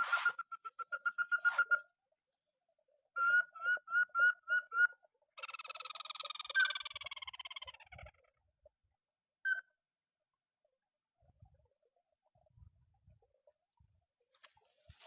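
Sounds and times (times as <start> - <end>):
crake calling: 0.0 - 2.0.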